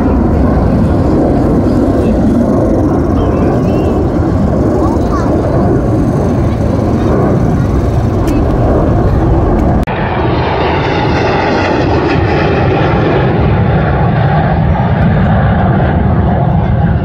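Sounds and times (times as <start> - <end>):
jet aircraft flying over: 0.0 - 17.0.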